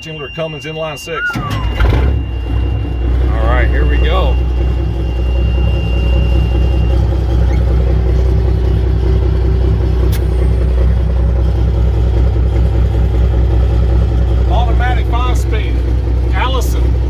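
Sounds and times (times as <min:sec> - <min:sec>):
thin high tone: 0:00.0 - 0:08.7
diesel truck engine rumbling: 0:00.0 - 0:17.0.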